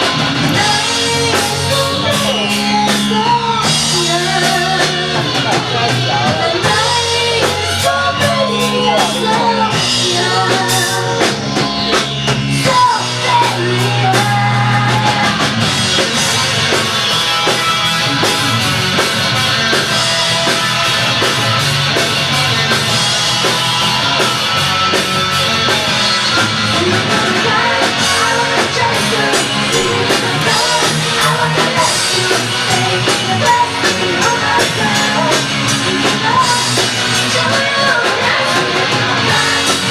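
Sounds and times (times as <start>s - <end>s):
person singing: 0.0s - 16.5s, 26.3s - 39.9s
rock band playing: 0.0s - 39.9s.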